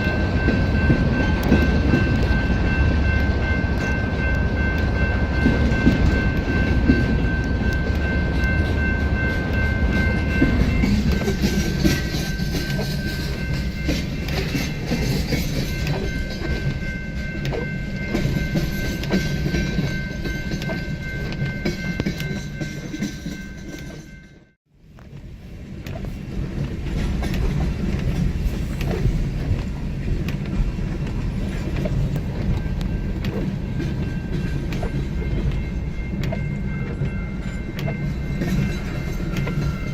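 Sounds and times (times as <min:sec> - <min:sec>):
freight train rumbling on rails: 0:00.0 - 0:39.9.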